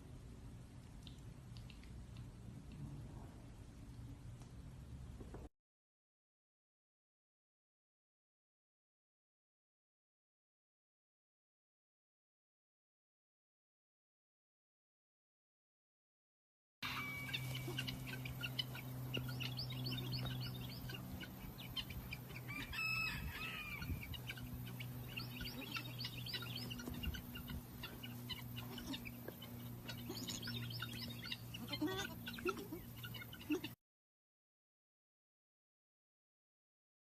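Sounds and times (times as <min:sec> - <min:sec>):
chickens chirping: 0:16.8 - 0:33.8
steady low hum: 0:16.8 - 0:33.8.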